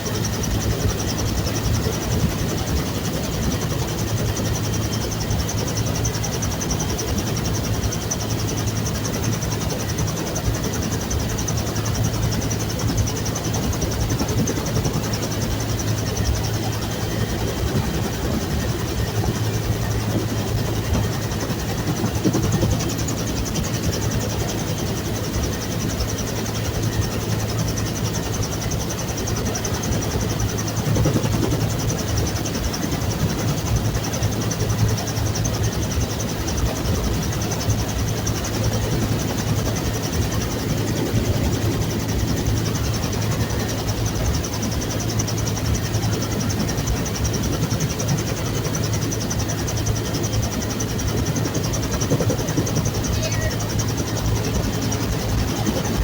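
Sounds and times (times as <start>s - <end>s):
helicopter engine and rotor running: 0.0s - 56.0s.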